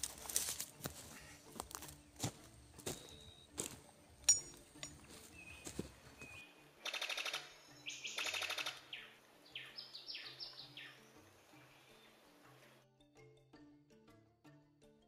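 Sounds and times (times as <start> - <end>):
bird whistled notes: 2.9 - 3.5, 5.3 - 11.0
bird rattling chatter: 6.9 - 7.5.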